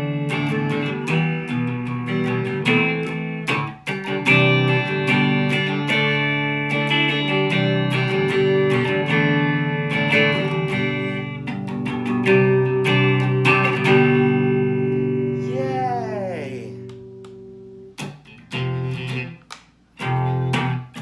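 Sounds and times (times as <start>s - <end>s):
electric guitar strummed chords: 0.0s - 19.4s.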